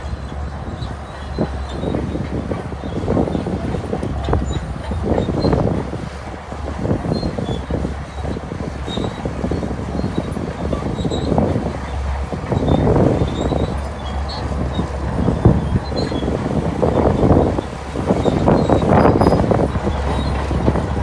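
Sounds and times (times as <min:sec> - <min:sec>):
bulldozer engine rumble: 0:00.0 - 0:21.0.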